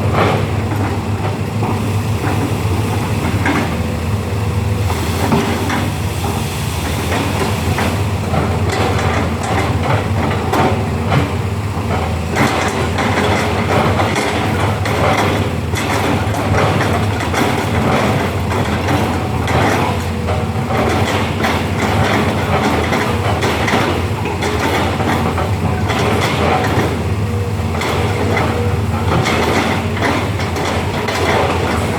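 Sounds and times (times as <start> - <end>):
diesel engine running: 0.0 - 31.9.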